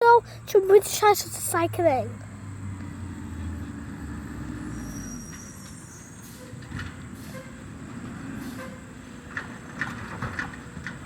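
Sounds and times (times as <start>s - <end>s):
thin high squeal: 4.6s - 6.6s.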